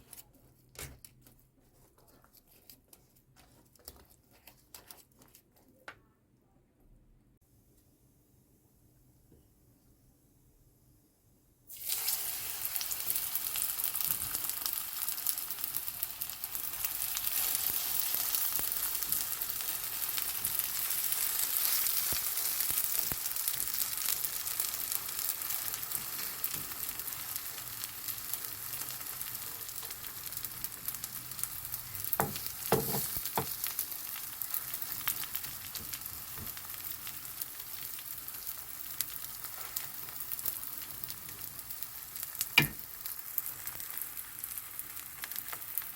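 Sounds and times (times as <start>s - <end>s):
pancake sizzling in hot oil: 11.7s - 45.9s.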